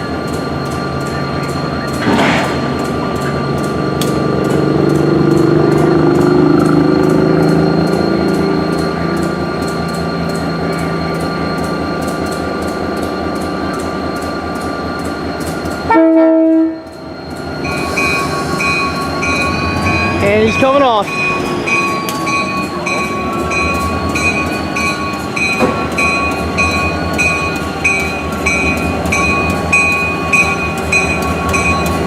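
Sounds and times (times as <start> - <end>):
locomotive running with low hum: 0.0 - 32.0
locomotive horn blast: 15.9 - 16.8.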